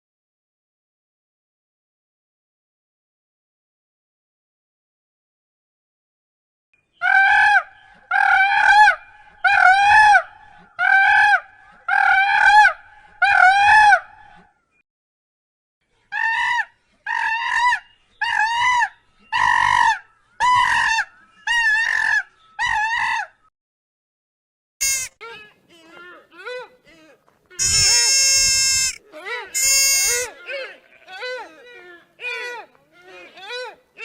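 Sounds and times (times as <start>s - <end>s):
bird calling: 24.8s - 25.2s, 27.6s - 30.3s.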